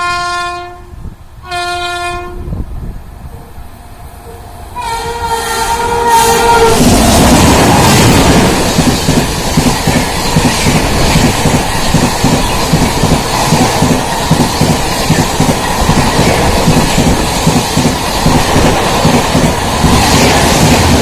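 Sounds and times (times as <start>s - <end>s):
locomotive twin-tone horn: 0.0s - 2.6s, 4.2s - 8.0s
train rushing past: 0.0s - 21.0s.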